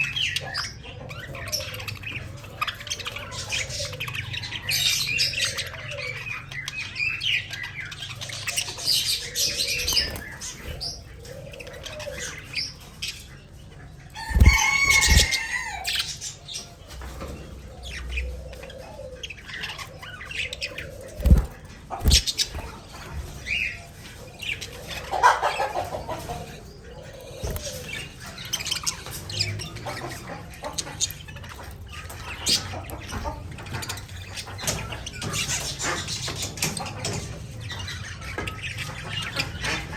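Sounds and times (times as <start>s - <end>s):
budgerigars chirping and chattering: 0.0s - 39.9s
wing flutters: 14.2s - 15.5s, 20.9s - 22.8s.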